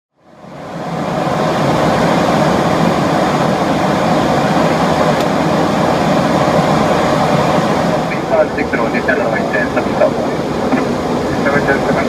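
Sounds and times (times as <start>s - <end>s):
airliner cabin engine and airflow noise: 0.2s - 12.0s.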